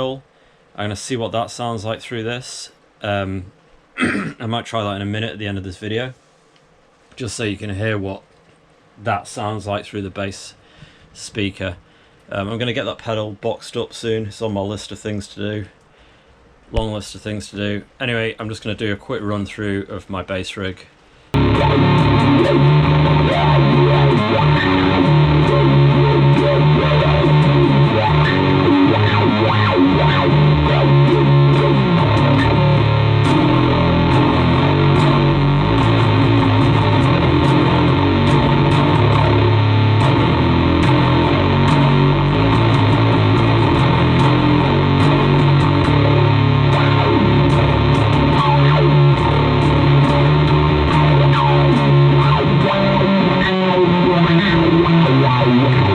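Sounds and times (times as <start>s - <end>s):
distorted electric bass riff: 21.4s - 55.9s.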